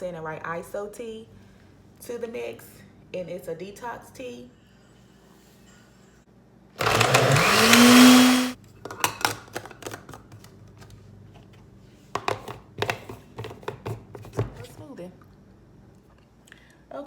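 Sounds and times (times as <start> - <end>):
blender motor whine: 6.8 - 8.6.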